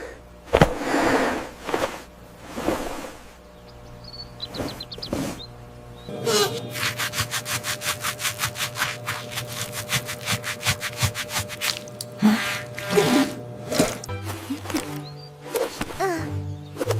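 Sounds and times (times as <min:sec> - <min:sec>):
scrubbing strokes: 0:01.0 - 0:03.4, 0:04.5 - 0:05.5, 0:06.1 - 0:16.0
faint background music: 0:13.0 - 0:16.9.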